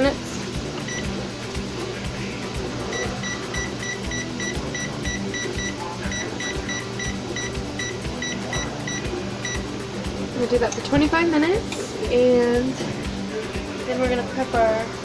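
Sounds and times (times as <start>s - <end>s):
oven control short high beeps: 0.8s - 1.2s, 2.9s - 9.7s.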